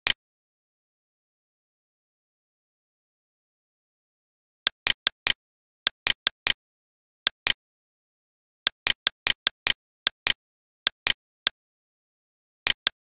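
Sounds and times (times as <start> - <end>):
computer mouse clicking: 12.7 - 13.0.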